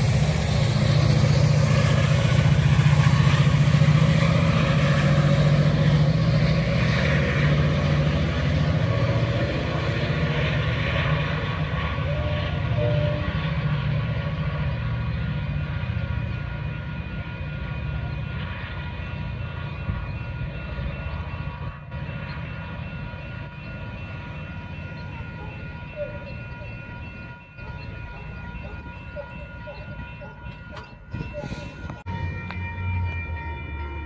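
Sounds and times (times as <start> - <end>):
train rumbling past: 0.0 - 34.0
steady high tones ringing: 15.9 - 34.0.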